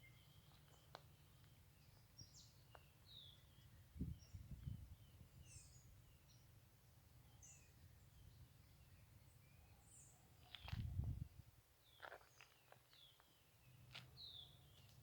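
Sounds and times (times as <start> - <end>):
birds chirping: 11.8 - 15.0.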